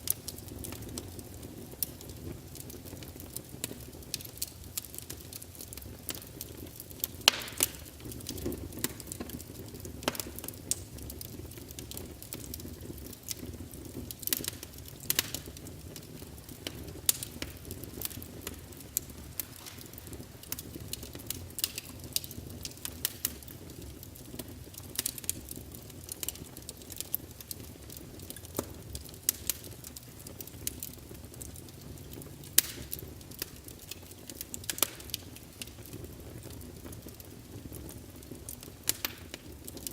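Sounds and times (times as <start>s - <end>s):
firewood crackling and popping: 0.0s - 39.9s
low rumble of flames: 0.0s - 39.9s.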